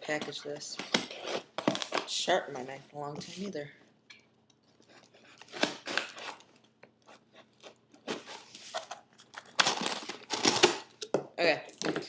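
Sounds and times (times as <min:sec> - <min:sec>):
knife cutting tape and cardboard: 0:05.1 - 0:09.0, 0:09.6 - 0:10.9.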